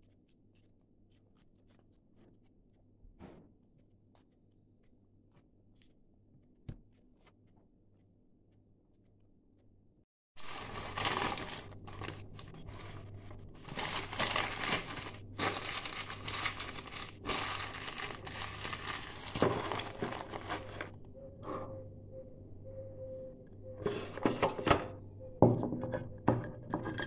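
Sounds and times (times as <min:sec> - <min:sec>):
packaging crinkling and tearing: 0:10.4 - 0:21.0
faint steady tone: 0:21.0 - 0:23.9.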